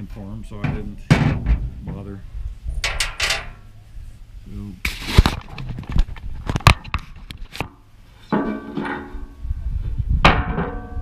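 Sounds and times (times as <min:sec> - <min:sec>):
metal parts knocking and clattering: 0:02.8 - 0:03.6.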